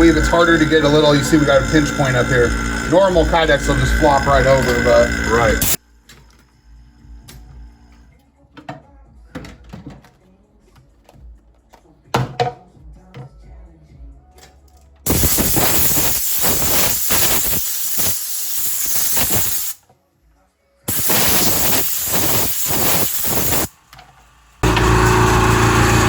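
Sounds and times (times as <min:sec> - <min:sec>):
loud hiss of rushing air: 0:15.1 - 0:19.8, 0:20.9 - 0:23.7.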